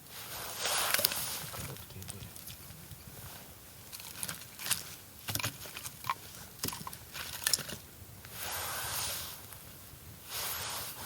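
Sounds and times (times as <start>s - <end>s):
campfire crackling and popping: 0.4s - 8.4s
hissing rush: 10.2s - 11.0s.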